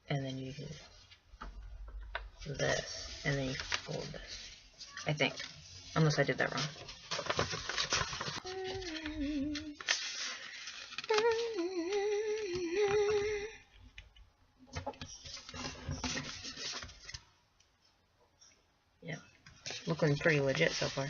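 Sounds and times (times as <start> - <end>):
paper crinkling and rustling: 2.7 - 13.4, 14.9 - 17.3, 19.6 - 21.0
woman humming: 8.4 - 9.8, 11.1 - 13.7.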